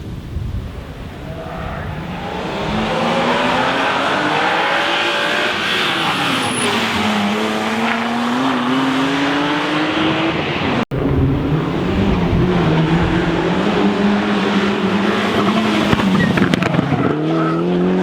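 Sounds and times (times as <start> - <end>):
rally car engine accelerating: 1.1 - 18.0.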